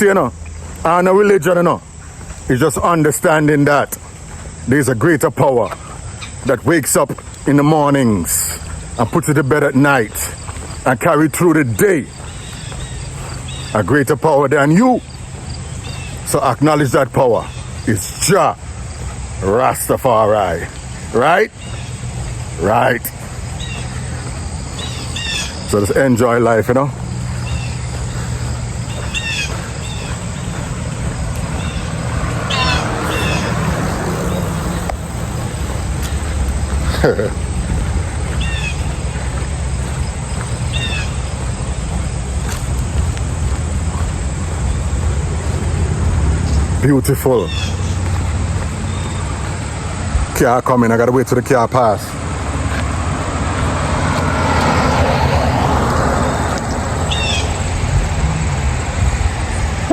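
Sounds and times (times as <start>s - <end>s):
downward-bending bird calls: 0.0s - 48.0s, 56.2s - 57.7s
car passing by: 20.5s - 50.4s, 52.0s - 59.9s.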